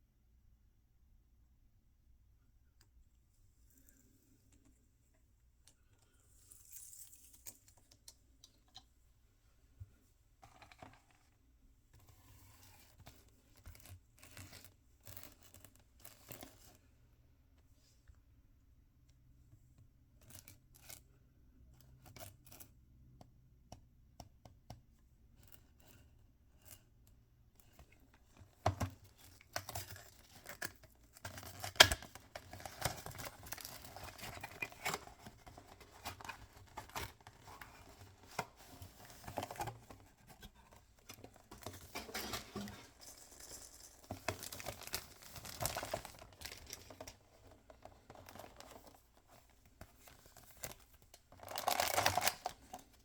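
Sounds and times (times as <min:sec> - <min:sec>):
packaging tearing and crinkling: 0:29.6 - 0:37.8, 0:41.6 - 0:47.1, 0:51.4 - 0:52.6.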